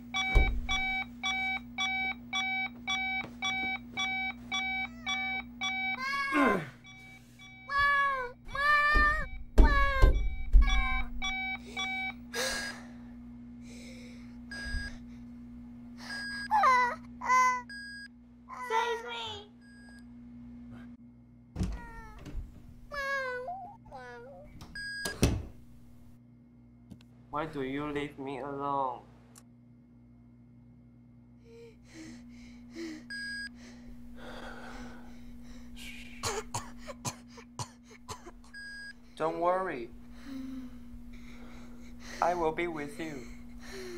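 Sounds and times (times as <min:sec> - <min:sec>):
steady low hum: 0:00.0 - 0:43.9
person gasping and coughing: 0:06.3 - 0:06.8, 0:36.1 - 0:38.4
breathy gasps: 0:31.5 - 0:36.2, 0:43.2 - 0:43.9.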